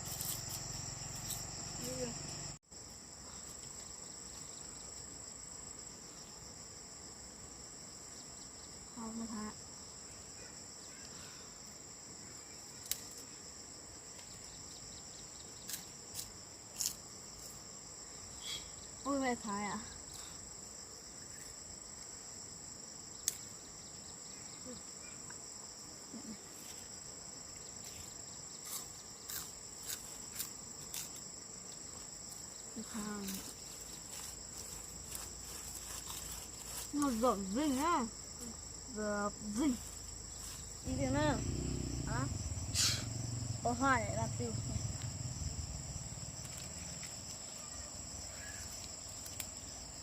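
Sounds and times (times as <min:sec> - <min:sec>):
insects chirring: 0:00.0 - 0:50.0
low rumble: 0:40.9 - 0:46.3.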